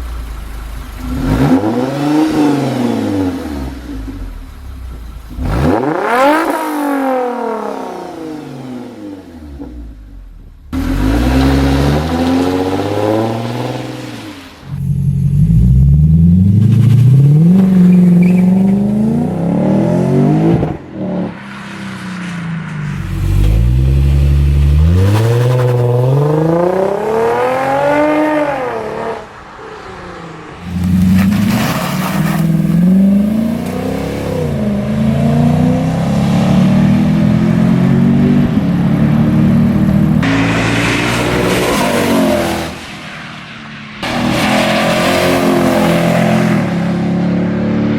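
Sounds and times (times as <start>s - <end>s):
car engine revving hard: 1.0s - 4.0s, 5.3s - 9.6s, 10.8s - 14.5s, 23.0s - 29.3s, 30.7s - 42.8s.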